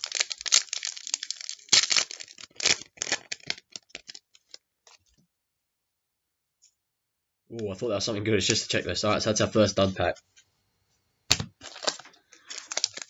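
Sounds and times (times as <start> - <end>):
wrapper crinkling: 0.0 - 5.1, 11.3 - 13.0.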